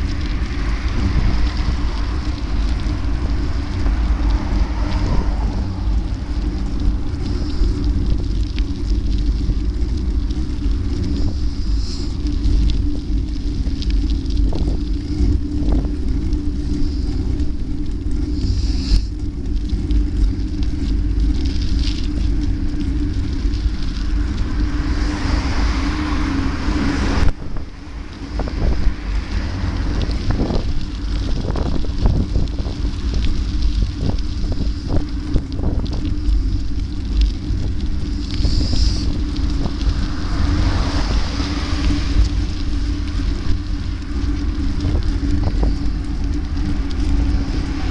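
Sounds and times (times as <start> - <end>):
road noise: 0.0 - 47.9
steady hum: 0.0 - 47.9
wind buffeting microphone: 0.0 - 47.9
hiss: 6.6 - 8.6, 10.8 - 12.9, 16.3 - 19.2, 32.4 - 43.8.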